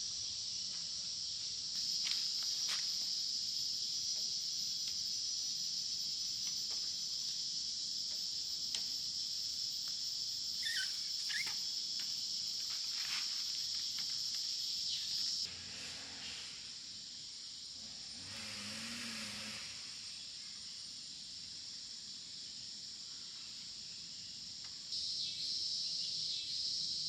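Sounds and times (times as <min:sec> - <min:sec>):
insects droning: 0:00.0 - 0:27.0
short chirps: 0:10.6 - 0:11.6.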